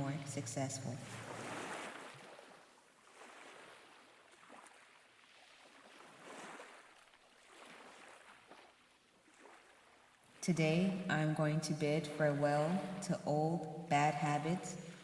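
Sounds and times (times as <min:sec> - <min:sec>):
ocean waves washing in: 0:00.2 - 0:08.4.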